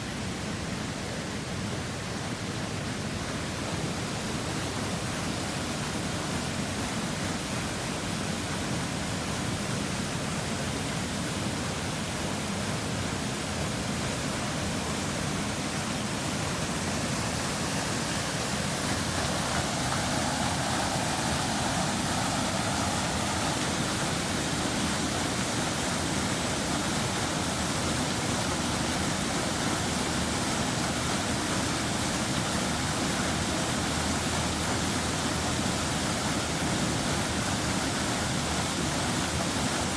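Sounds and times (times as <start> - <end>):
waterfall rushing: 11.5 - 39.9.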